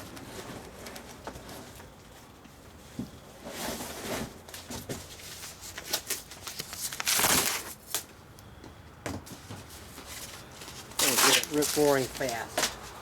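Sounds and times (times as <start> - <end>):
paper and cardboard crumpling: 3.9 - 8.0, 9.7 - 13.0.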